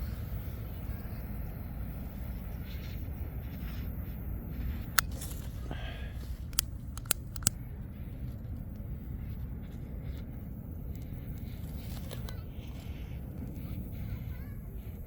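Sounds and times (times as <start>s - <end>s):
campfire clicks and snaps: 4.8s - 7.6s.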